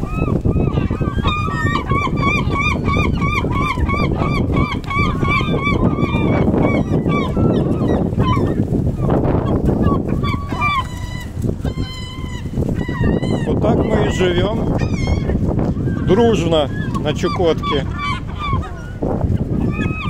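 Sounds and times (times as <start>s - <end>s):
gulls calling: 0.0s - 20.0s.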